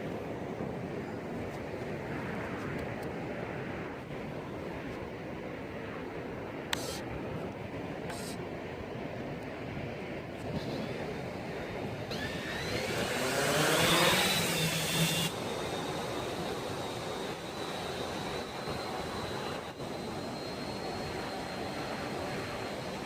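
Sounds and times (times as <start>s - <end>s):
drone propellers whining: 10.5s - 23.0s.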